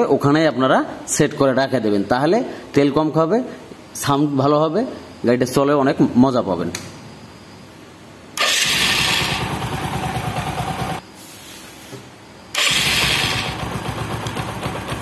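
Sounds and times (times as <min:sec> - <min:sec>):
motorcycle engine starting and idling: 0:08.4 - 0:11.0, 0:12.5 - 0:15.0.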